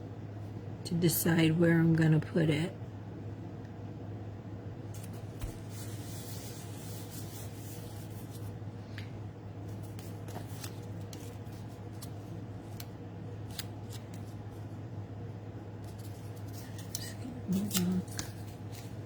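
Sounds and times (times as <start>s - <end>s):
steady low hum: 0.0s - 19.0s
paper rubbing and rustling: 4.9s - 8.6s, 9.6s - 14.4s, 15.8s - 19.0s.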